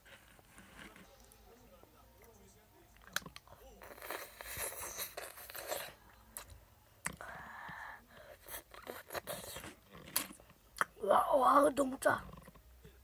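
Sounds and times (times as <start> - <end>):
crunching crisp snack: 3.0 - 6.5, 8.4 - 10.4.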